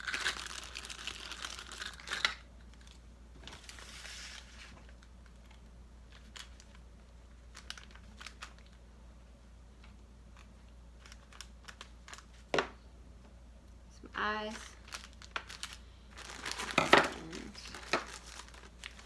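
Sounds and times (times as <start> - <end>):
paper bag rustling: 14.7 - 19.0.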